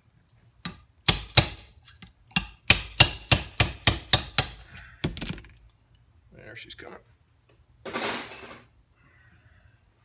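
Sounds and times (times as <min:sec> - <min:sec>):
hammer striking metal chisel: 0:00.6 - 0:04.8.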